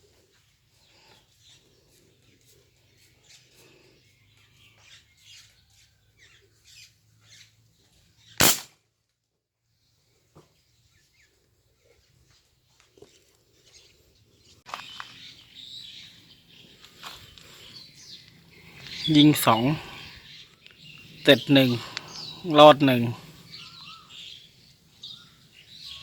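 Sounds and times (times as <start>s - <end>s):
air rifle shot: 8.4s - 8.7s
faint chirps: 14.7s - 24.5s.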